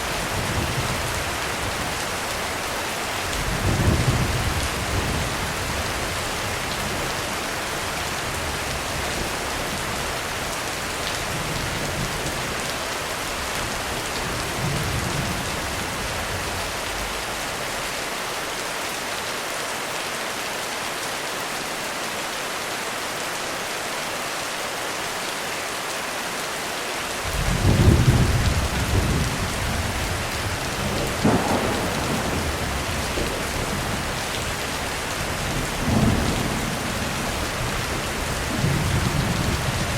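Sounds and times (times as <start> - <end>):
heavy rain falling: 0.0 - 39.9
thunder rumbling: 13.7 - 17.9, 27.3 - 39.9.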